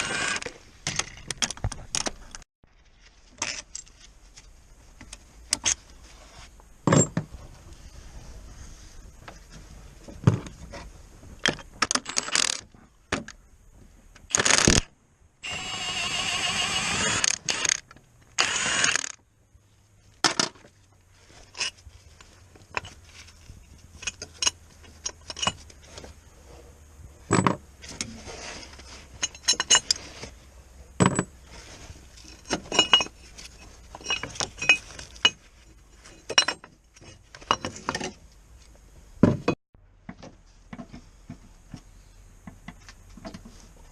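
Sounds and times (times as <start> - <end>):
metal tools clinking and clattering: 29.1 - 30.1, 32.2 - 38.2.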